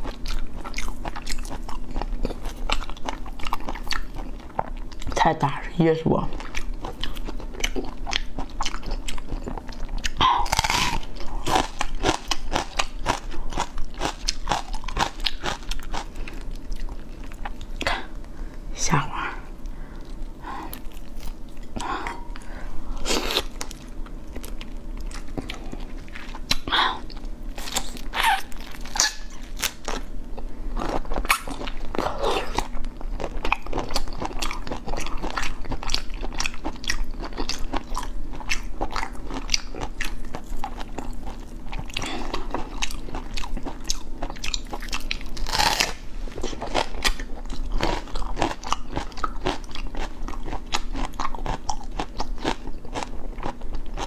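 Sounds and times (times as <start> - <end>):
wet crunchy chewing: 6.4 - 18.0, 30.8 - 54.0.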